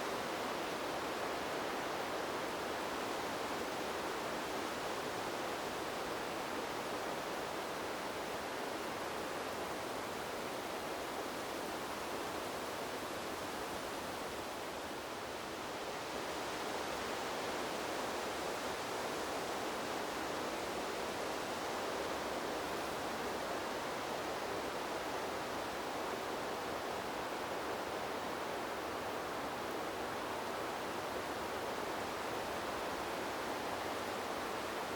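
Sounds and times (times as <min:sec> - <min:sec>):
wind through bamboo: 0:00.0 - 0:34.9.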